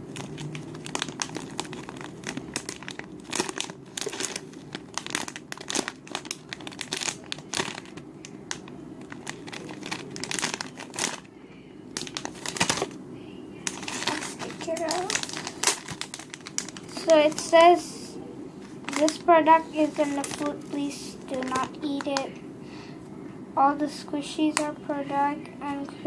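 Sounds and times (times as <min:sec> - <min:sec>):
plastic bag crinkling: 0:00.0 - 0:11.3, 0:11.9 - 0:13.0, 0:13.6 - 0:17.8, 0:18.6 - 0:22.4.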